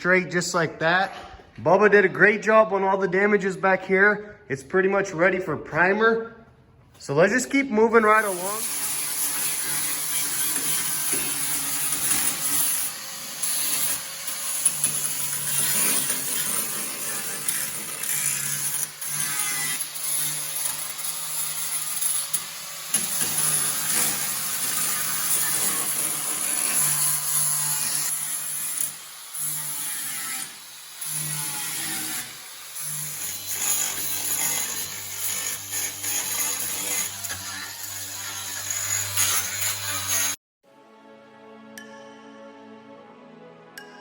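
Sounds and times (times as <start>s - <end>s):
power tools running: 8.0s - 29.8s.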